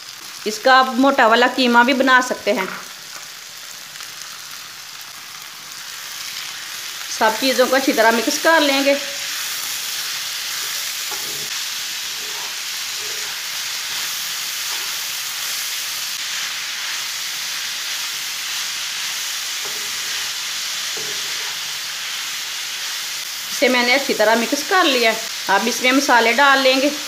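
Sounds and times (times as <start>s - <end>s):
food sizzling in oil: 0.0s - 27.0s
wooden spatula scraping pan: 10.6s - 14.1s.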